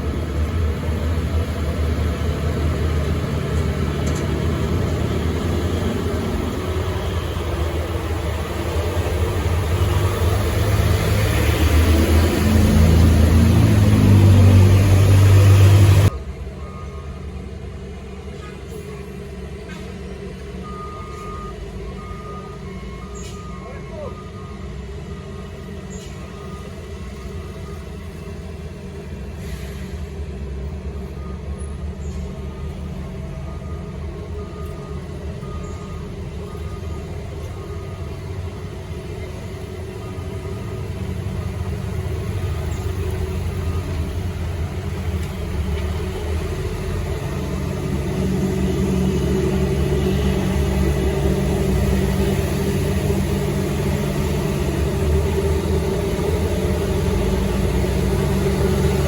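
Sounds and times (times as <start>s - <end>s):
heavy truck engine rumbling: 0.0s - 59.0s
reversing beeper: 5.3s - 17.4s, 20.6s - 28.1s, 31.0s - 44.4s.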